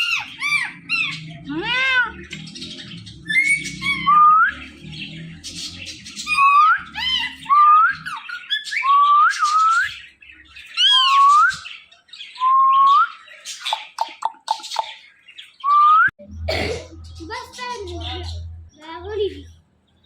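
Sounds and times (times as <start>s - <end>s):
parrot sharp squawk: 0.0s - 2.3s
parrot squawky chatter: 0.0s - 10.0s, 10.6s - 11.4s, 13.4s - 15.1s, 17.0s - 18.5s
parrot whistling rising notes: 3.2s - 4.8s, 6.2s - 10.0s.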